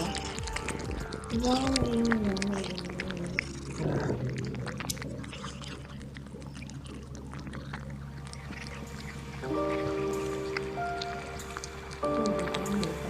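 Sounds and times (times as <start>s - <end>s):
drawn-out animal call: 0.0s - 13.0s
steady low hum: 0.0s - 13.0s.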